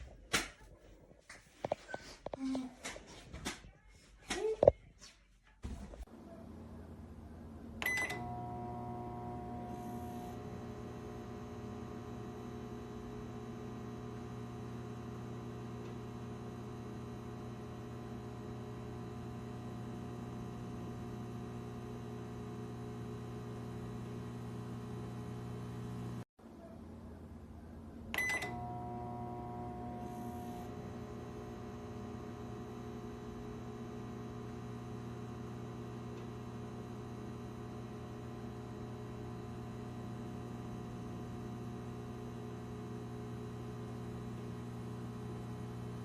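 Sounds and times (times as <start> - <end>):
microwave oven humming: 6.1 - 46.0
microwave keypad beep: 7.8 - 8.3, 28.2 - 28.6.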